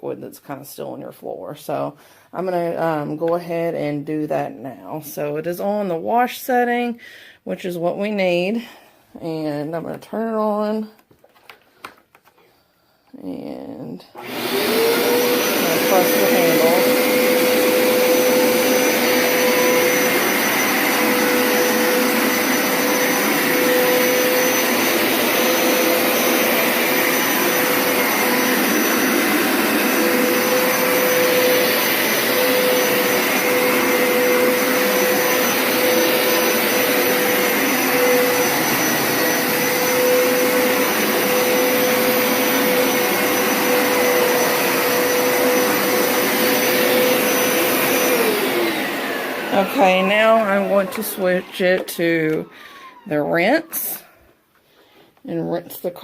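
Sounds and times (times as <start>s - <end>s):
suction motor whine: 14.2s - 51.9s
carpet washer running: 14.2s - 53.0s.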